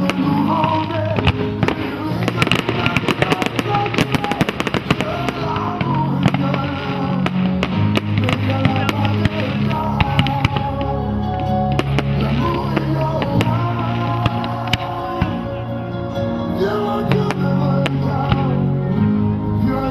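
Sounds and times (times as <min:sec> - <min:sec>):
fireworks bangs and crackling: 0:00.0 - 0:18.7
loud music: 0:00.0 - 0:19.9.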